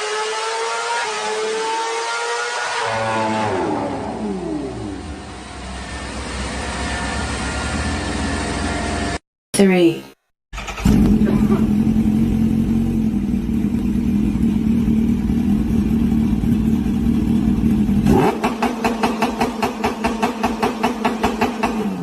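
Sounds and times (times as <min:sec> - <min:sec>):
motorcycle engine revving: 0:00.0 - 0:09.2, 0:10.6 - 0:22.0.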